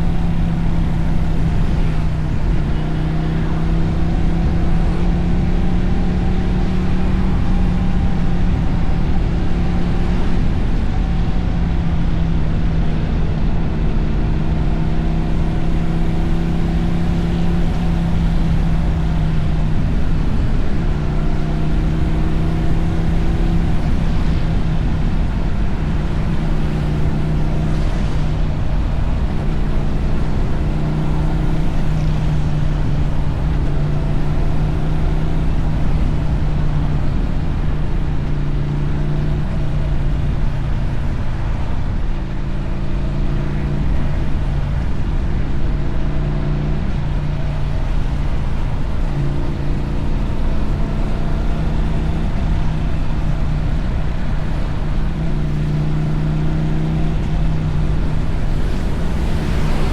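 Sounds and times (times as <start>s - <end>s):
motorcycle engine cruising: 0.0s - 59.9s
tyres on a wet road: 0.0s - 59.9s.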